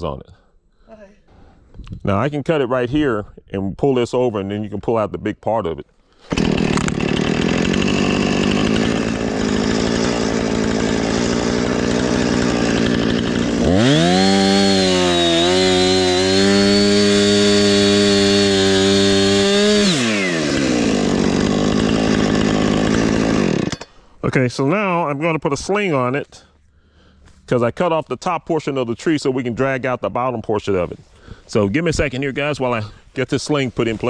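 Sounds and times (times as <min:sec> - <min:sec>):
chainsaw revving and cutting wood: 0:06.2 - 0:24.0.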